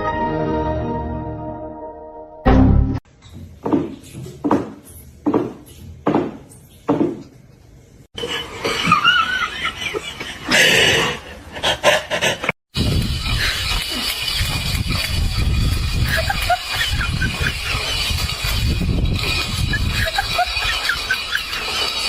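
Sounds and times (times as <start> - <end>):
person laughing: 15.9 - 18.1, 19.4 - 21.9.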